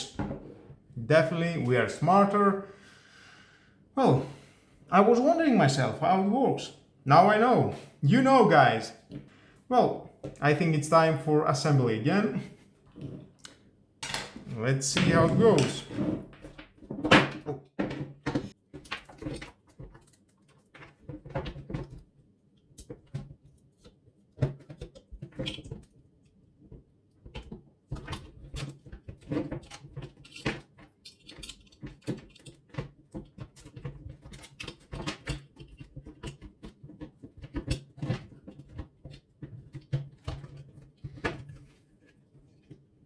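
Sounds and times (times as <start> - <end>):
plastic parts clicking and knocking: 22.8 - 26.0, 26.7 - 41.7.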